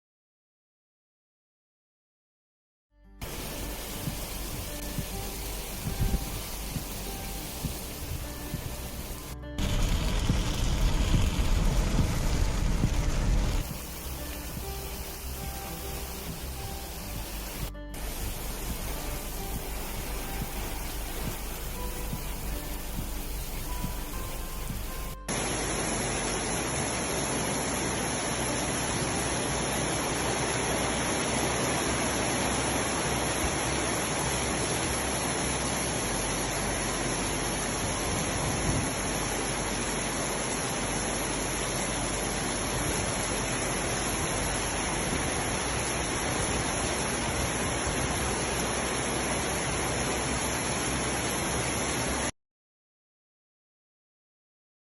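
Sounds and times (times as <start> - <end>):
faint music tones: 3.0 - 40.2
heavy rain hissing: 3.2 - 52.3.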